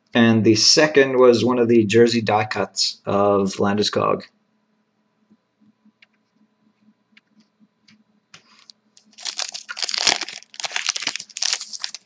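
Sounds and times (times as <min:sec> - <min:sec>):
wrapper crinkling and tearing: 0:09.0 - 0:12.0.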